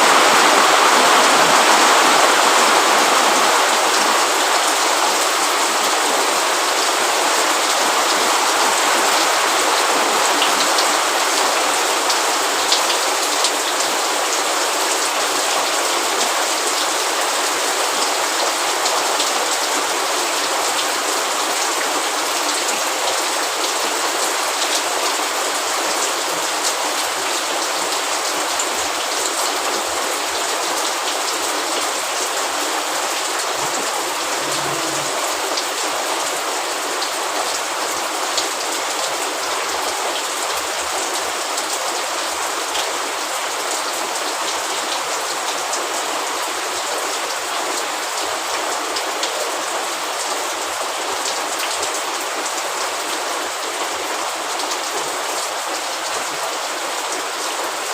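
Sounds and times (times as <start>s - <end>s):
steady rain falling: 0.0s - 57.9s
raindrops pattering on surfaces: 31.8s - 37.8s.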